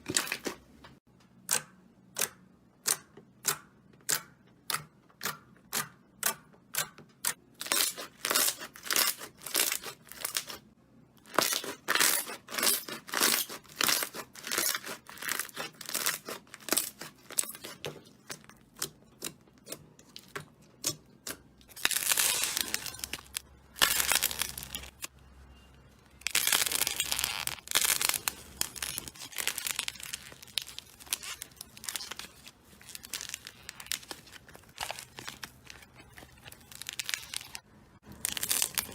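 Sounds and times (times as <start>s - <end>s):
slime popping and crackling: 11.2s - 25.1s, 26.2s - 38.9s.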